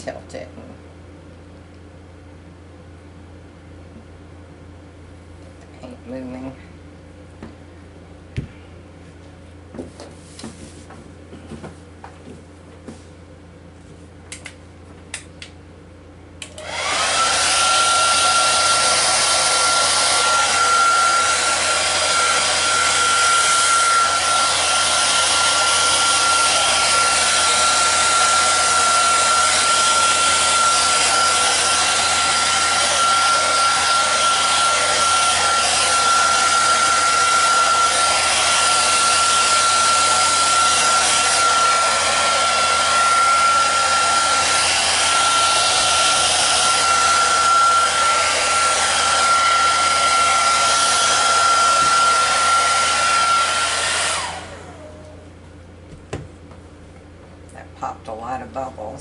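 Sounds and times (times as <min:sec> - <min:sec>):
hot-air blower whine and rush: 0:16.4 - 0:56.8.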